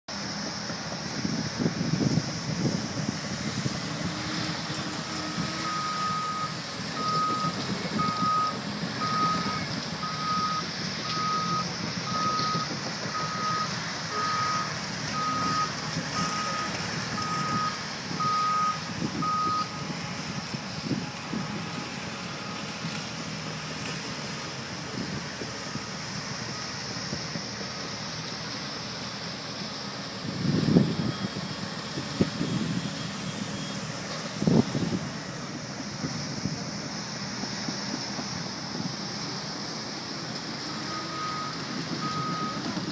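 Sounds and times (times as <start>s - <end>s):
machinery noise: 0.1s - 42.9s.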